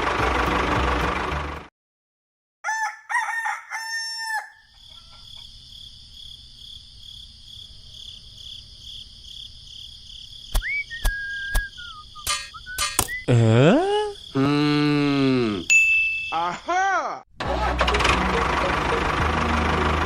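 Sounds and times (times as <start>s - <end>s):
rooster crowing: 2.6s - 5.4s
pulsing insect chorus: 4.6s - 15.7s
sharp clicks: 10.5s - 13.2s
rising whistle: 10.6s - 13.3s.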